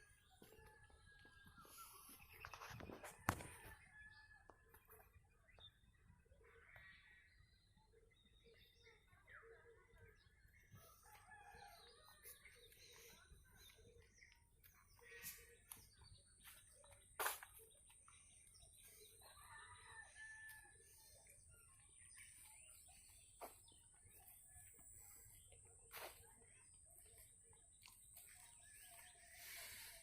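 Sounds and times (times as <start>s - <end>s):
small birds chirping: 6.6s - 30.0s.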